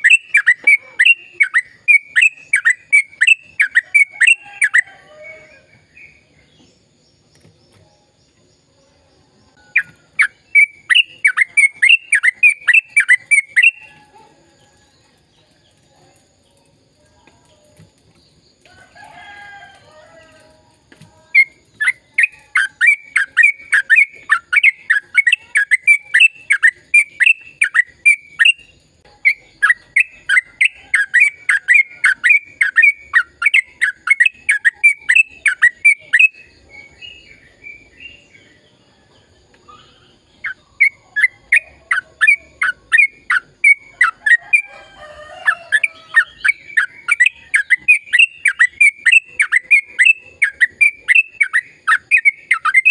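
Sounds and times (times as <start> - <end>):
bulbul singing sharp chirps: 0.0 - 4.6, 9.7 - 13.9.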